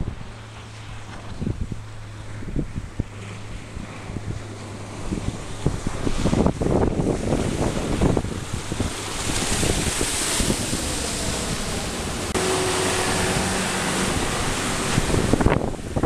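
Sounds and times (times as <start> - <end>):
water slapping against hull: 0.0 - 16.0
wind buffeting microphone: 0.0 - 16.0
faint engine tone: 10.4 - 15.6.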